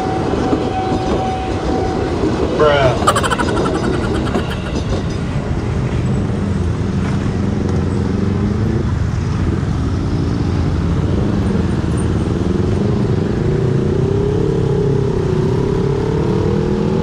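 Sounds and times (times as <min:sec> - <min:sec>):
dense motorcycle and car traffic: 0:05.9 - 0:17.0.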